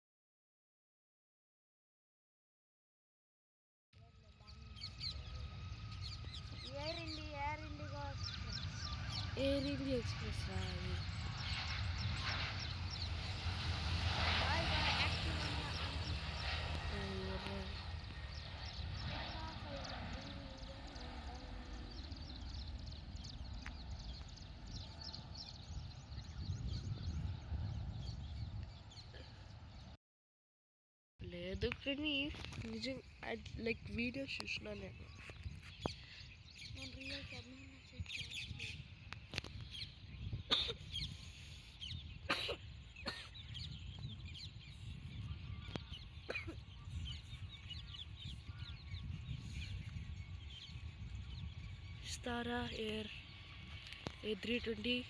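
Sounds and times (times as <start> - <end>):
birds chirping: 4.1 - 30.0, 31.3 - 55.0
low rumble: 4.4 - 29.7.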